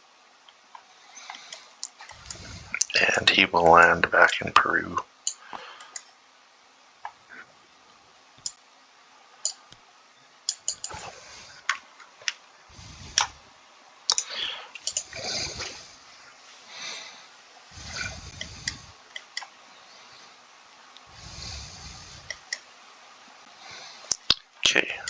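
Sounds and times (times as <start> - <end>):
soft low rustles: 12.6 - 13.8, 17.6 - 19.1.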